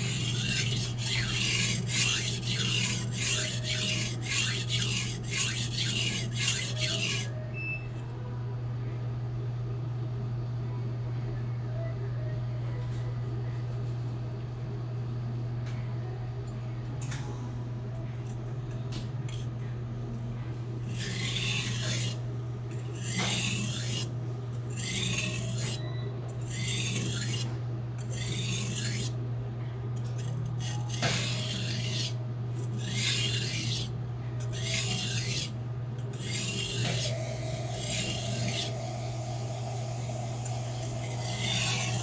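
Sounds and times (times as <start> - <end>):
knife grinding on whetstone: 0.0 - 7.4, 20.8 - 29.2, 30.1 - 42.0.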